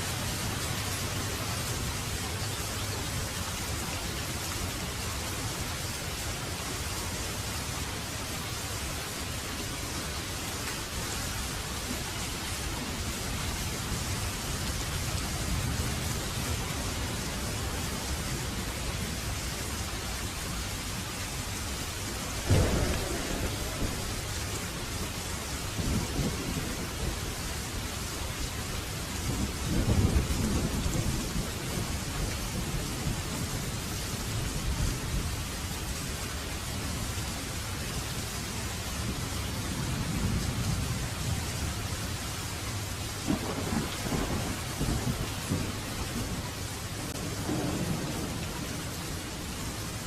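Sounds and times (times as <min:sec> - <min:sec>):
heavy rain: 0:00.0 - 0:50.0
loud thunderclap: 0:22.4 - 0:25.1, 0:43.3 - 0:46.4, 0:47.0 - 0:48.9
rolls of thunder: 0:22.4 - 0:25.2, 0:47.0 - 0:48.9.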